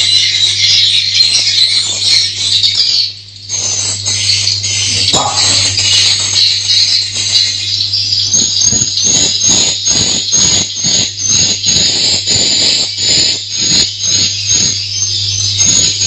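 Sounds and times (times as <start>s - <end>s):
steady low hum: 0.0s - 16.0s
rhythmic noise: 3.3s - 14.9s
swiftlets twittering: 4.2s - 16.0s.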